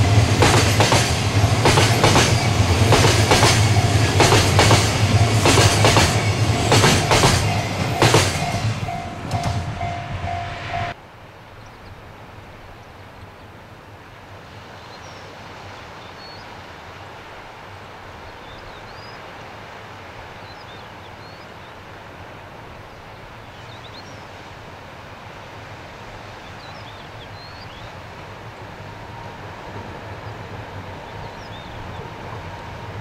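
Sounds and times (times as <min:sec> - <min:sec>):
distant freight train rumble: 0:00.0 - 0:11.0, 0:21.3 - 0:33.0
steady high tone: 0:06.2 - 0:11.0
small birds chirping: 0:30.1 - 0:32.2.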